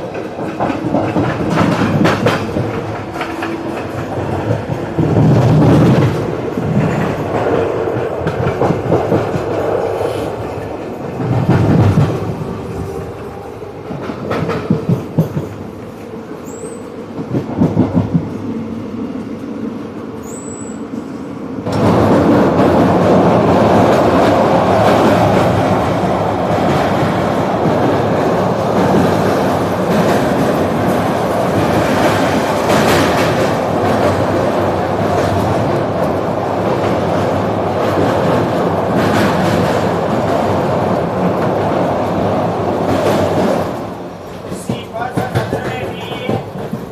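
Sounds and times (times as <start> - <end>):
train wheels knocking over joints: 0.0 - 9.7, 13.9 - 15.9, 42.8 - 46.9
train rumble: 0.0 - 46.9.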